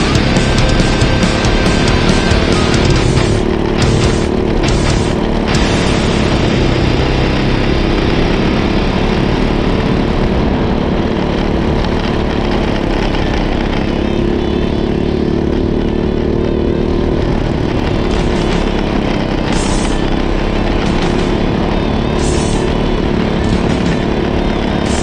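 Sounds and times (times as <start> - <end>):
go-kart engine running: 0.0 - 25.0.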